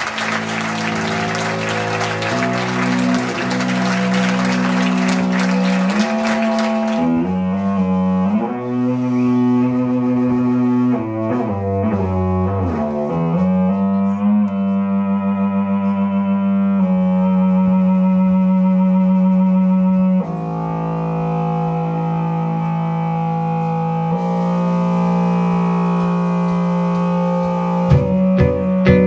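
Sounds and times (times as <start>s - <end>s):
audience applause: 0.0s - 7.3s
guitar: 0.0s - 19.4s, 23.2s - 29.0s
bowed string instrument: 0.0s - 29.0s.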